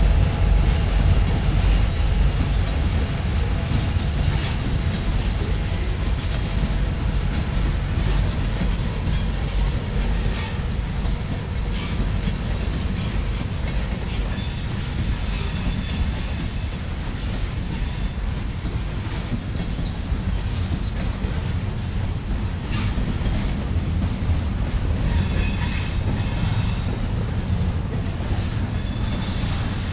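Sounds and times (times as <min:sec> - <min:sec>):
steel wheels rumbling on rail: 0:00.0 - 0:29.9
high wheel squeal: 0:14.2 - 0:16.9, 0:17.6 - 0:18.3, 0:25.1 - 0:26.9, 0:28.3 - 0:29.9.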